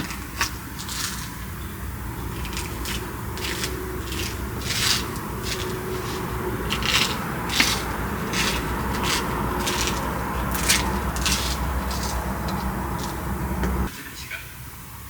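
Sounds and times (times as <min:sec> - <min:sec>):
steady low hum: 0:00.0 - 0:14.0
rubbing strokes: 0:02.2 - 0:13.9.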